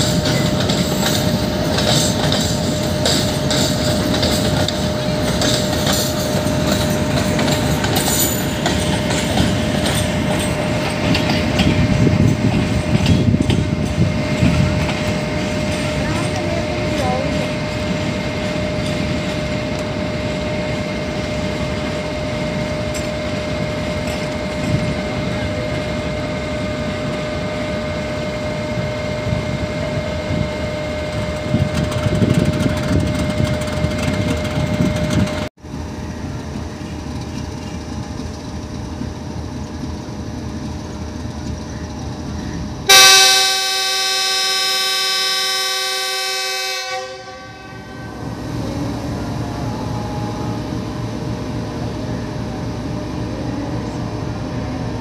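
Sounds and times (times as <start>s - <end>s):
locomotive air horn blast: 42.9s - 48.3s.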